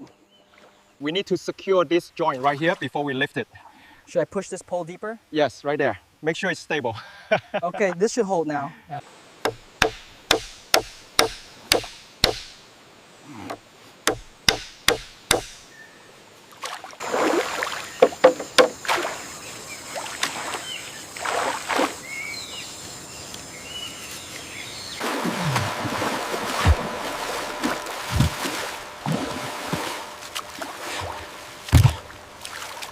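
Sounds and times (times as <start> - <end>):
bamboo being struck: 9.4 - 12.6, 13.5 - 15.7, 18.0 - 18.9, 31.7 - 32.0
water sloshing and splashing: 16.5 - 22.1, 25.0 - 32.9.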